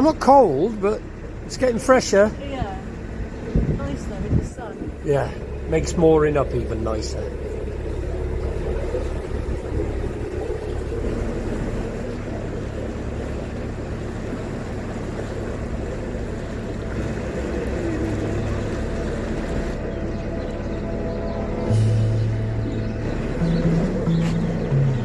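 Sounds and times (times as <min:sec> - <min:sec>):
diesel engine humming: 0:00.0 - 0:25.0.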